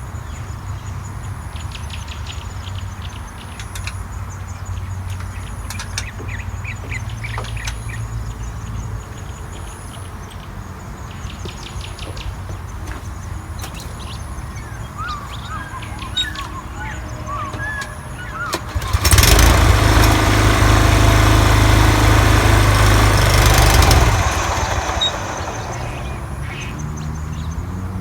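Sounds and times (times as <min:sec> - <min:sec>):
lawn mower running: 0:15.3 - 0:27.9.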